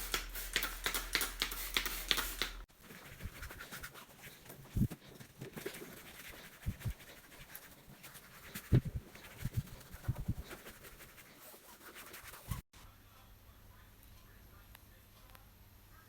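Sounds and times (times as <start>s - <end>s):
scratchy rubbing: 0.0s - 12.6s
scrubbing and wiping surfaces: 0.0s - 12.7s.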